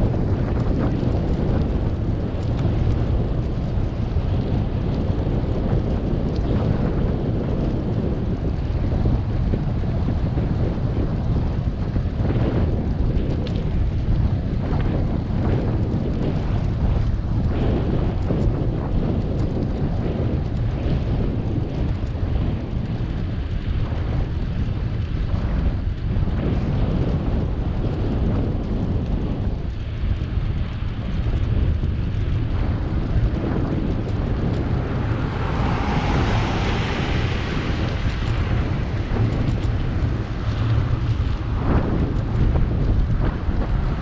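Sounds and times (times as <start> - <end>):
wind buffeting microphone: 0.0 - 44.0
loud rushing sound: 33.9 - 40.8.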